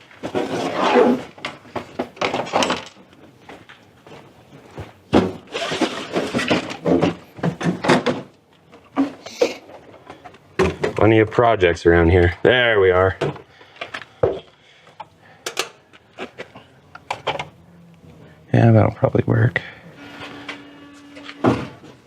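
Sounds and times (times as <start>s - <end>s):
hard objects clattering and thunking: 0.0s - 11.4s, 13.1s - 17.6s, 21.2s - 22.0s.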